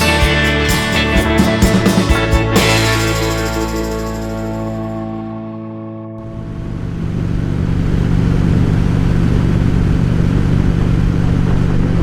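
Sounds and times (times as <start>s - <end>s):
motorcycle engine cruising: 0.0s - 5.4s.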